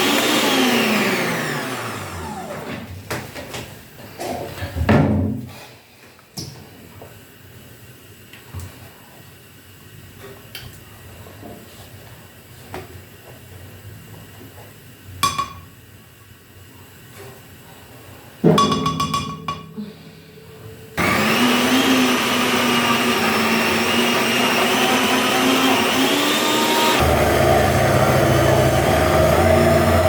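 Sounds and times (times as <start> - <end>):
blender motor running: 0.0 - 2.8, 21.0 - 30.0.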